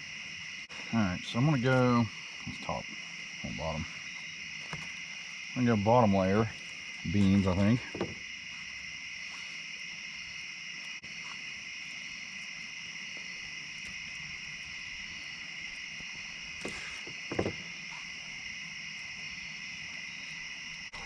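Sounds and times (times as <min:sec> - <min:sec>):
crickets and insects chirring: 0:00.0 - 0:21.0
short knocks: 0:07.8 - 0:08.2, 0:16.6 - 0:17.6.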